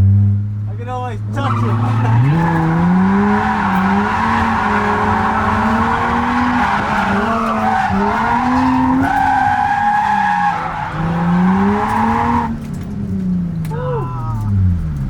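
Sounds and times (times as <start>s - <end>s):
car engine revving: 0.0s - 15.0s
tyres screeching: 0.7s - 12.7s.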